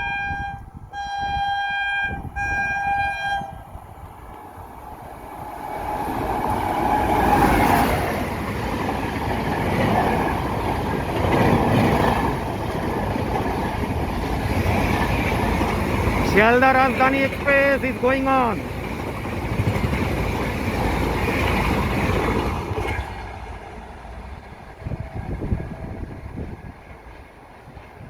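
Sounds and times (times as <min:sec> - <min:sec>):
locomotive horn blasts: 0:00.0 - 0:03.7
train rumble and wheel clatter: 0:00.0 - 0:28.0.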